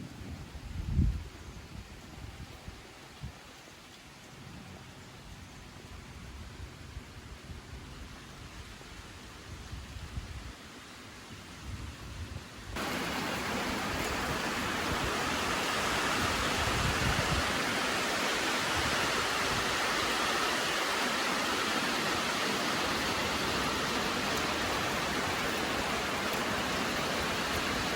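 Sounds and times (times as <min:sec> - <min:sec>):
heavy rain falling: 0:12.8 - 0:27.9.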